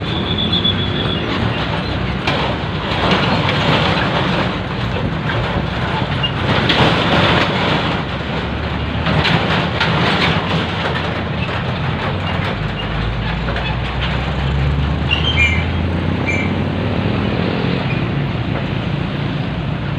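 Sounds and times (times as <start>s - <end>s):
train rumbling past: 0.0s - 19.9s
wheels clattering over rails: 0.0s - 19.9s.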